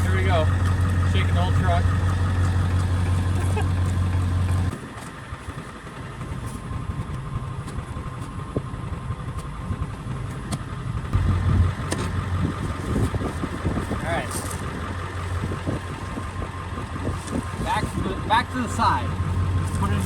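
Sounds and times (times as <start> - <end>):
log splitter heavy low drone: 0.0 - 20.0
truck engine idling: 0.0 - 20.0.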